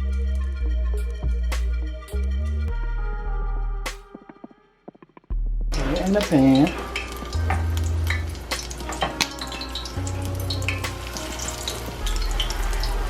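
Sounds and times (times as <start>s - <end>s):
food sizzling in hot oil: 5.8s - 13.0s.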